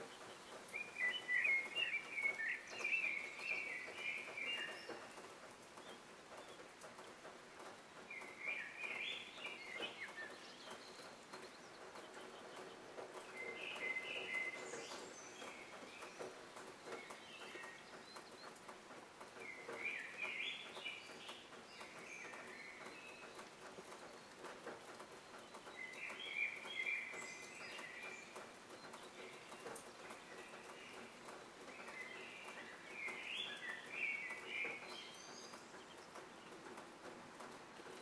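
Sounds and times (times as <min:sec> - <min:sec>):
bird singing faintly: 0:00.0 - 0:05.1.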